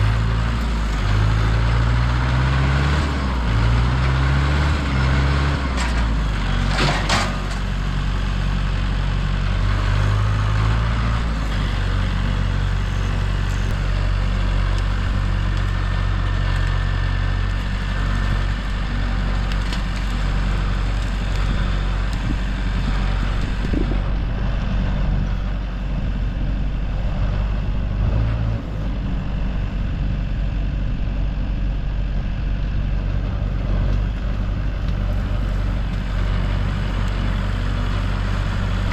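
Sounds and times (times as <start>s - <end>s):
large engine running: 0.0s - 38.9s.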